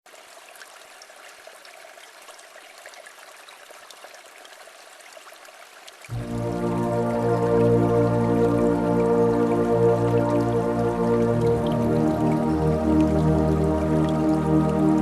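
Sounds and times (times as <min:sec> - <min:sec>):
small river trickling: 0:00.1 - 0:15.0
slow ambient music: 0:06.1 - 0:15.0.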